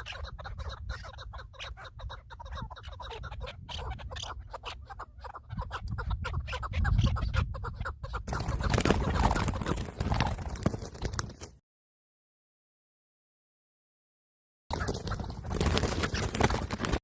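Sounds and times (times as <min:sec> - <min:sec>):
birds chattering: 0:00.0 - 0:10.4.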